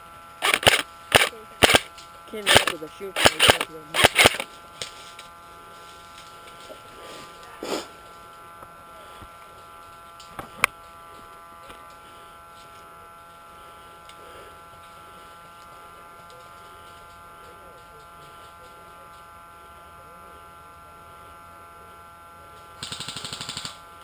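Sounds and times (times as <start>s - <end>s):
steady electrical whine: 0.0s - 24.0s
airsoft gun shot: 0.4s - 1.9s, 2.5s - 4.4s.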